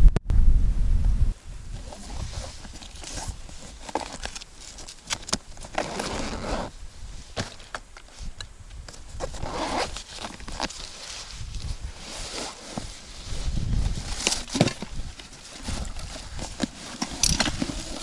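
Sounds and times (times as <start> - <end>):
rustling: 0.0 - 1.4.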